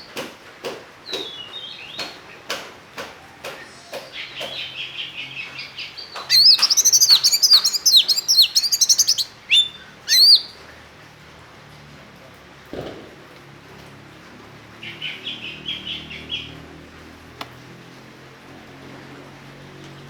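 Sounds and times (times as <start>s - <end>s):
bird calls: 1.0s - 2.5s, 3.1s - 10.8s
bird whistled song notes: 3.6s - 10.6s
bird ticking clicks: 5.4s - 10.4s.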